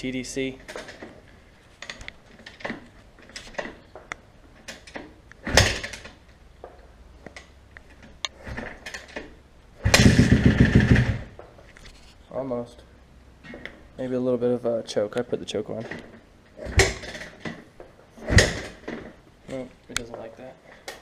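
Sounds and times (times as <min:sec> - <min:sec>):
motorcycle kick-start: 0:04.8 - 0:06.2, 0:09.8 - 0:11.3
motorcycle engine firing briefly: 0:09.8 - 0:11.3.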